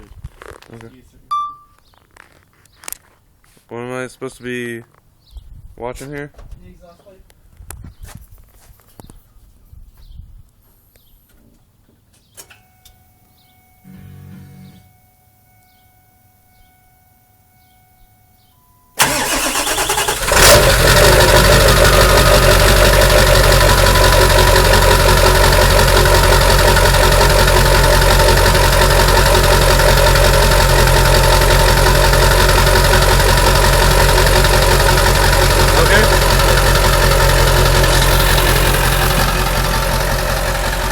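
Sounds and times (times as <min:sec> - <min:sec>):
diesel engine idling: 0:19.0 - 0:40.9
starter motor cranking: 0:19.0 - 0:40.9.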